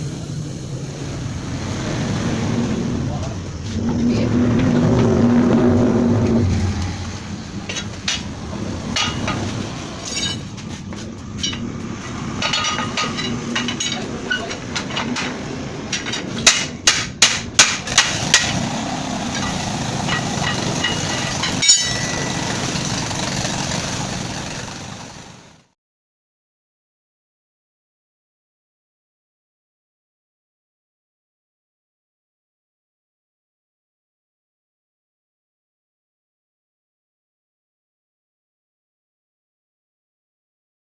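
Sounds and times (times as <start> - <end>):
hammer striking: 12.4 - 18.7, 19.3 - 22.8.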